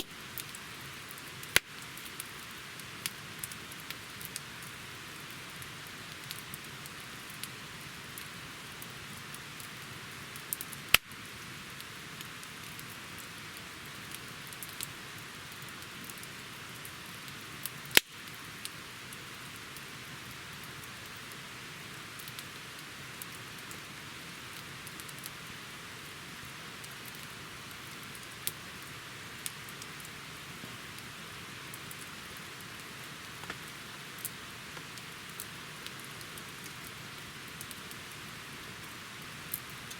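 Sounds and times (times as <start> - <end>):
loud pops from burning wood: 0.0 - 8.3, 10.4 - 11.2, 17.6 - 18.8, 32.7 - 36.9
campfire crackling: 0.0 - 39.9.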